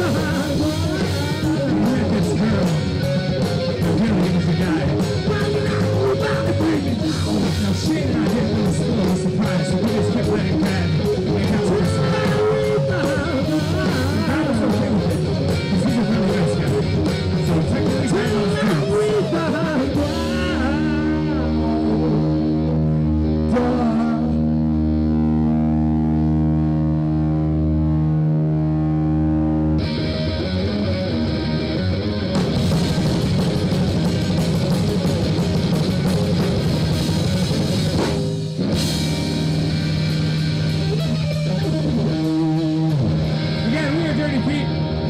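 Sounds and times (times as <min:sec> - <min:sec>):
drums: 0:00.0 - 0:27.2, 0:29.8 - 0:45.0
electric guitar: 0:00.0 - 0:45.0.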